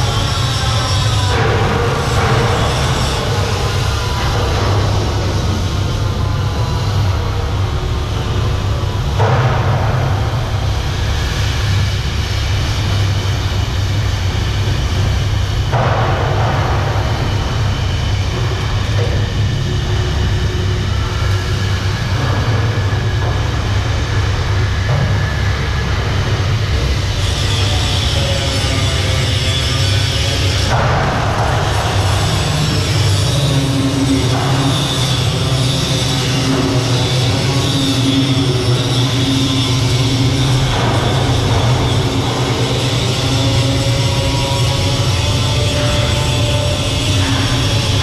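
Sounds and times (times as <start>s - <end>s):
engine-room machinery drone: 0.0s - 48.0s
harsh noise: 0.0s - 48.0s.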